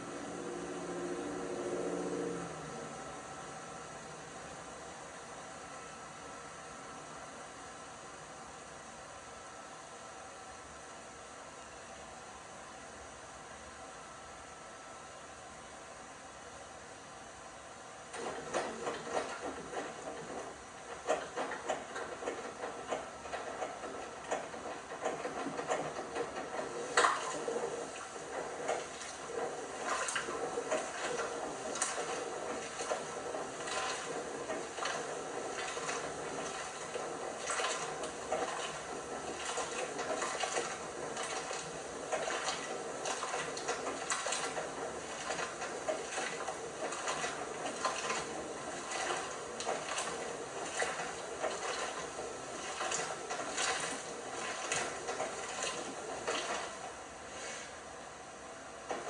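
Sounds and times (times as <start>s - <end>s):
water sloshing in washing machine: 0.0s - 5.8s, 18.1s - 57.7s, 58.8s - 59.0s.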